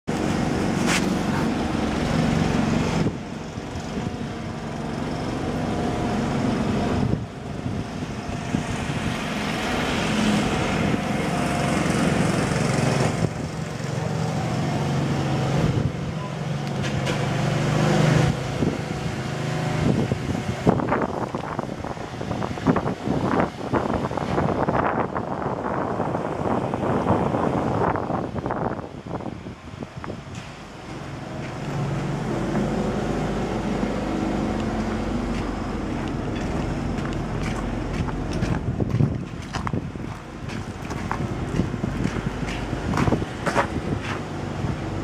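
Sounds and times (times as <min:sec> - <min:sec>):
engine running steadily: 0:00.1 - 0:45.0.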